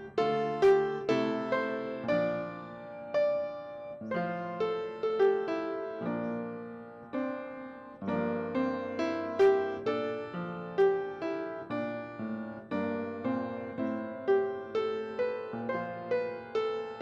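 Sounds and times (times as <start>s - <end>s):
solo piano playing: 0.0s - 17.0s.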